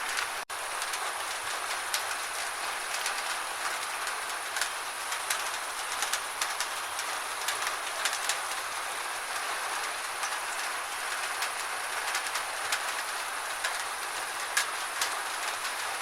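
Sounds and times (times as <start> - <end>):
gentle steady rain: 0.0 - 16.0
raindrops ticking: 0.0 - 16.0.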